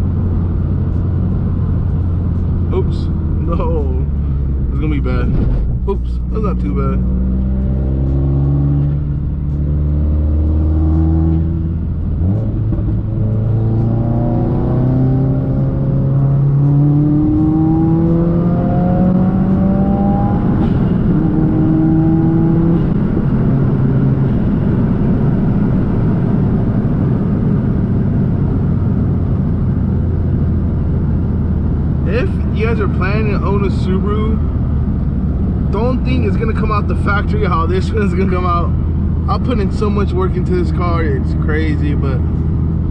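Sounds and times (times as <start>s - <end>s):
road noise: 0.0s - 42.9s
car engine accelerating through gears: 4.0s - 37.1s.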